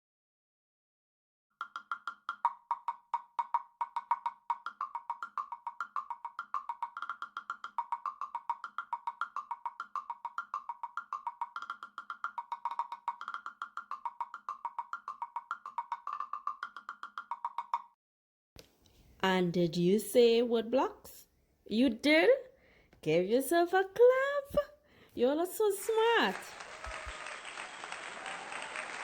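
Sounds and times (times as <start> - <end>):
wood blocks struck: 1.6 - 17.9.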